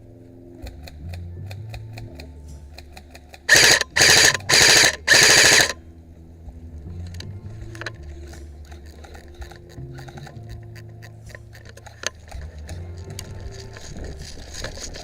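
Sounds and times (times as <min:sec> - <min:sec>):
airsoft gun full-auto bursts: 0:03.5 - 0:05.8.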